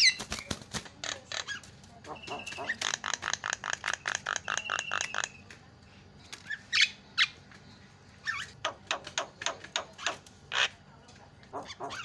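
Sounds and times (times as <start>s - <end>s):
myna bird squawking: 0.0s - 5.4s, 8.2s - 10.8s, 11.5s - 12.0s.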